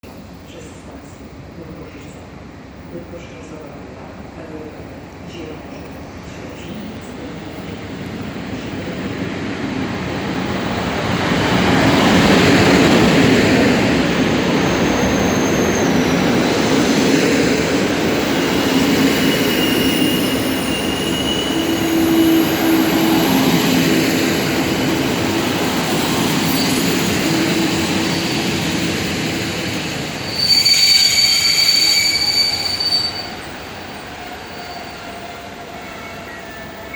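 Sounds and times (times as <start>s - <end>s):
train rumbling past: 0.0s - 36.9s
train brake squeal: 14.3s - 36.9s.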